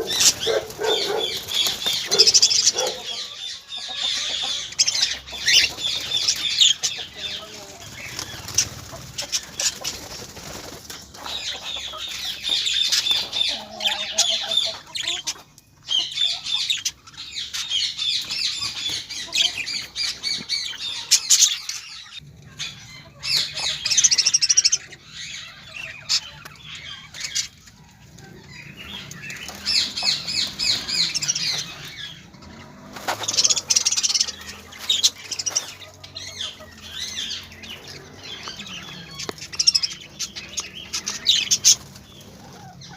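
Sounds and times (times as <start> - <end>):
wings fluttering: 0.0 - 3.0, 7.6 - 13.4, 28.9 - 35.9
birds chirping: 0.0 - 42.9.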